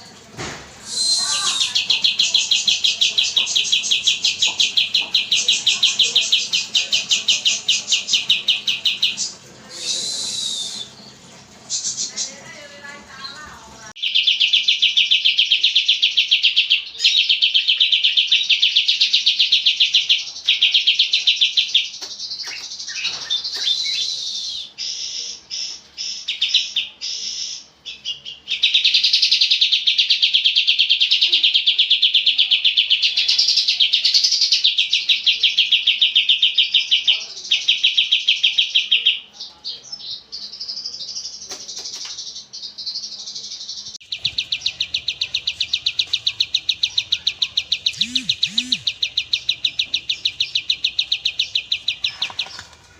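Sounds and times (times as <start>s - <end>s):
songbird trilling: 0.9s - 11.2s, 44.0s - 52.6s
bird chirps and twitters: 0.9s - 52.9s.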